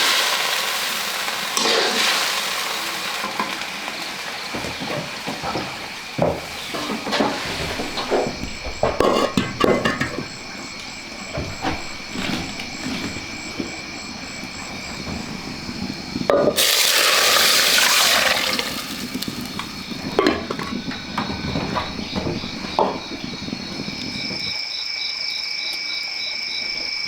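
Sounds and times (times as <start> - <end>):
insects chirping: 0.0 - 27.0
scattered knocks: 4.6 - 16.6, 18.9 - 24.5.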